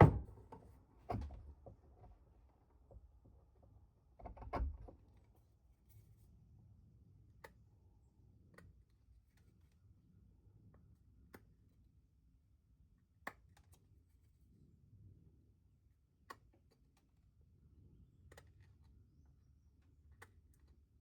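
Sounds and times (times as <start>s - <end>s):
knock: 0.0s - 0.4s
low room hum: 0.0s - 21.0s.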